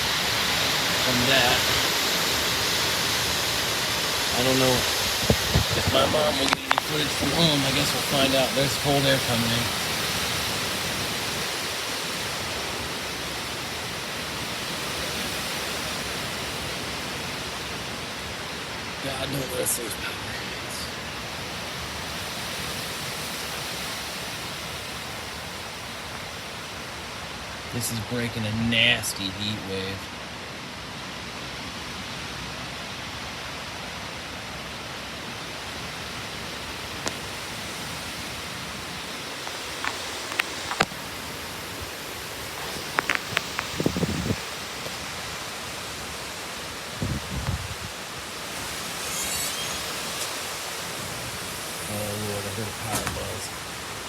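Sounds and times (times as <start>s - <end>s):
strong wind rushing: 0.0s - 18.5s, 36.1s - 54.0s.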